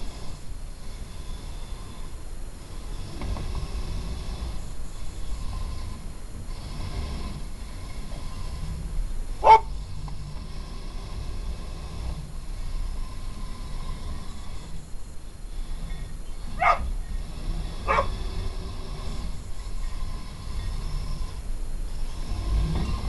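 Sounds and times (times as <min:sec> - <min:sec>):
electric motor whine: 0:00.0 - 0:23.0
dog barking: 0:09.4 - 0:09.7, 0:16.6 - 0:16.9, 0:17.9 - 0:18.1.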